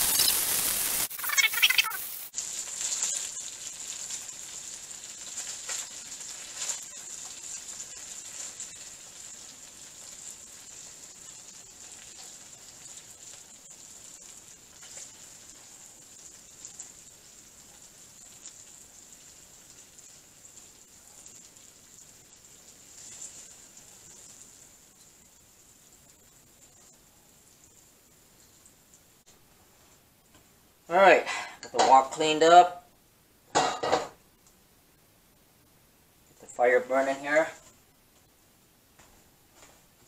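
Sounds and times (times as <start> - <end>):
fish sizzling in oil: 0.0 - 30.0.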